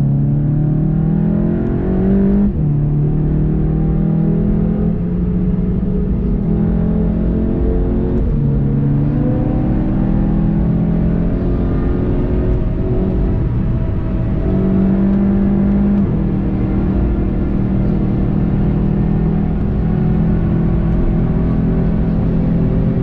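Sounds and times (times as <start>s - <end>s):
car engine accelerating: 0.0s - 23.0s
gear change: 4.3s - 23.0s.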